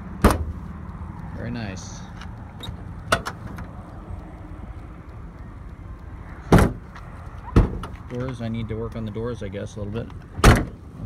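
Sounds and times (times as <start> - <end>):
truck door slams: 0.2 - 0.6, 6.5 - 6.9, 7.5 - 8.0, 10.4 - 10.8.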